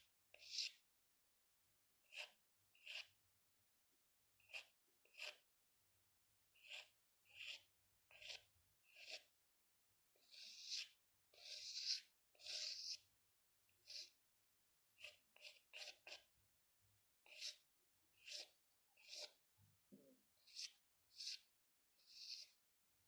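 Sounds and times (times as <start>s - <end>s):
pencil scratching on paper: 0.0s - 0.9s, 2.0s - 3.2s, 4.4s - 5.5s, 6.5s - 9.4s, 10.2s - 14.3s, 14.9s - 16.4s, 17.2s - 19.5s, 20.2s - 22.7s.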